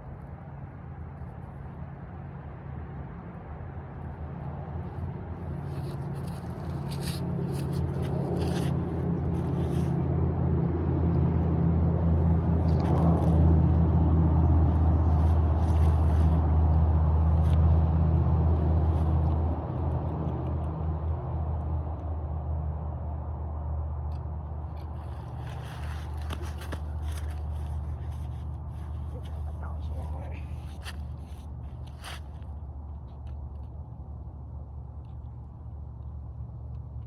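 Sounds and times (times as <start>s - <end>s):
low engine hum: 0.0s - 37.0s
light clicks and scrapes: 5.5s - 10.0s, 15.1s - 16.5s, 24.1s - 33.8s.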